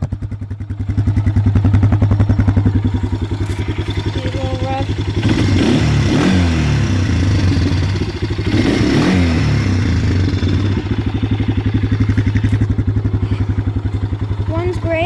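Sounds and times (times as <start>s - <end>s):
engine revving and idling: 0.0s - 15.0s.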